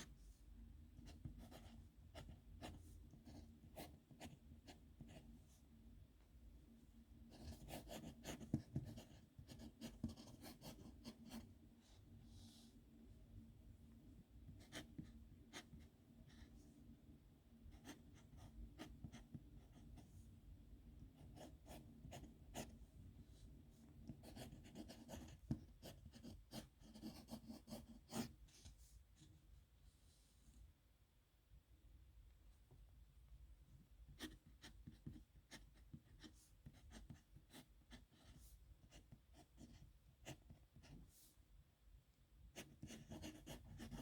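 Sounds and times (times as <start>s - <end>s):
pen scratching on paper: 1.0s - 5.3s, 7.3s - 11.4s, 24.1s - 28.7s, 34.1s - 41.0s, 42.6s - 44.0s.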